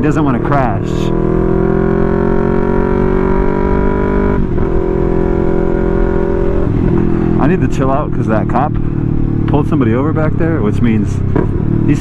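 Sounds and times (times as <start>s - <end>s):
motorcycle engine and exhaust cruising: 0.0s - 12.0s.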